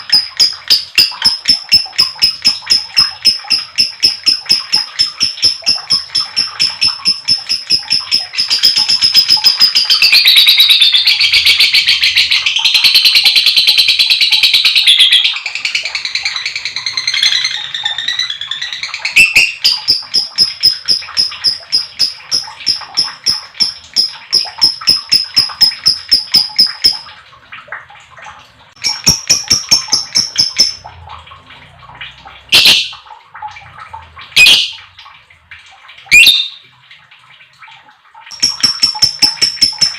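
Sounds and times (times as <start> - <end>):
lovebird chattering trill: 0.0 - 13.4, 14.2 - 27.1, 28.8 - 30.8, 38.3 - 39.9
bird squawks: 14.3 - 27.0, 36.1 - 36.6.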